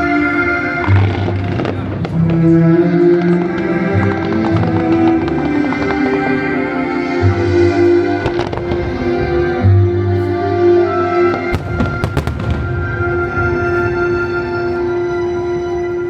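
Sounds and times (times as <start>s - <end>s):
music: 0.0s - 16.0s
fireworks cracking: 11.4s - 13.8s.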